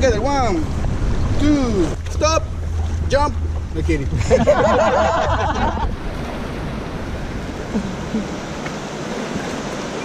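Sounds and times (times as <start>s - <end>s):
river water rushing: 0.0s - 10.0s
wind noise on microphone: 0.0s - 10.0s.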